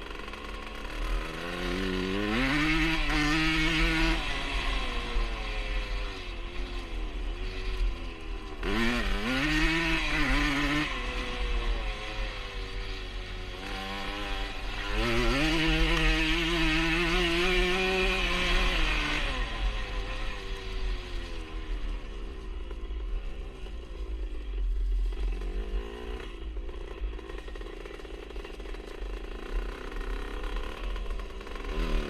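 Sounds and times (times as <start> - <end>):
two-stroke engine revving: 0.0 - 22.8, 25.0 - 32.0.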